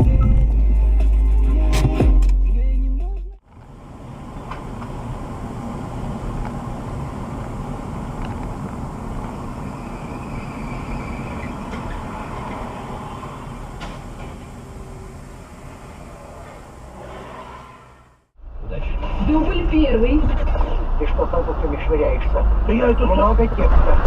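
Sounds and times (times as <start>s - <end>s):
vehicle driving on road: 3.4s - 24.0s.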